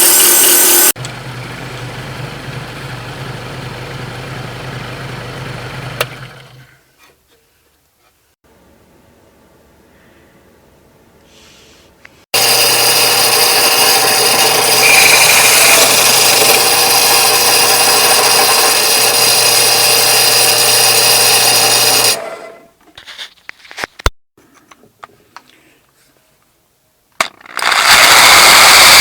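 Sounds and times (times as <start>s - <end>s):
power tool motor humming: 0.0s - 1.0s, 12.4s - 22.3s, 27.6s - 29.0s.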